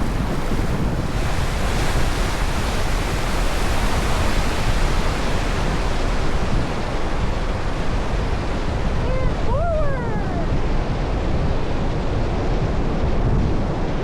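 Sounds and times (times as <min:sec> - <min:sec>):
river rapid rushing: 0:00.0 - 0:12.1.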